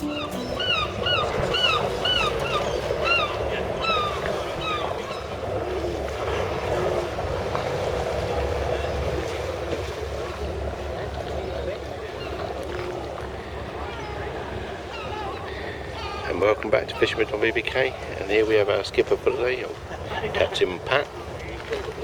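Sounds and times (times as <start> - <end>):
short high calls: 0.0 - 2.2
boat engine rumble: 0.0 - 22.0
sea wash: 0.0 - 22.0.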